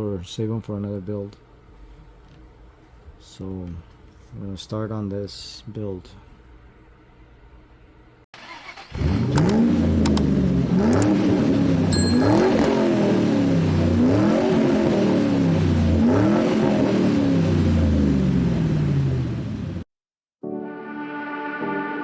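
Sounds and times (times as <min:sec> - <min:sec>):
car engine revving: 0:09.0 - 0:19.8.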